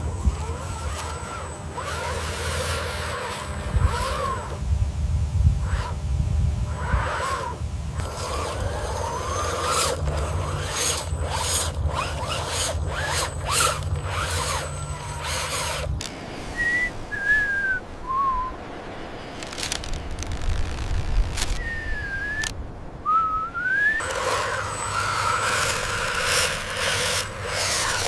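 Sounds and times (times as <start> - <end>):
squeaky gliding tones: 0.0 - 4.6, 6.7 - 16.0, 23.1 - 28.0
machinery humming: 0.0 - 28.0
whistle-like chirps: 16.6 - 18.6, 21.6 - 22.5, 23.1 - 25.5.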